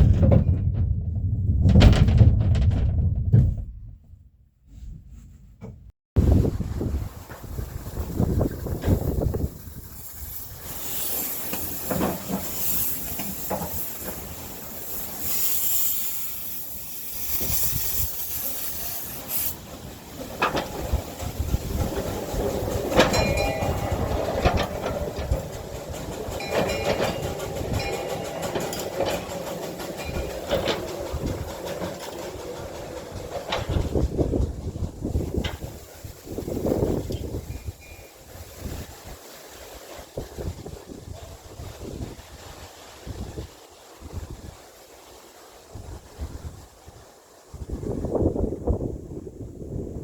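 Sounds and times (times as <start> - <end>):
steam locomotive hissing: 6.3 - 47.6
running gear knocking: 20.2 - 35.8
metallic wheel squeal: 22.9 - 31.4.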